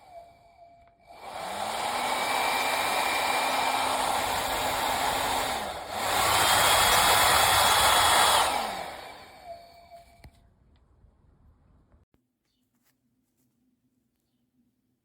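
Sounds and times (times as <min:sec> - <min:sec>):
hair dryer blowing: 0:00.0 - 0:10.3.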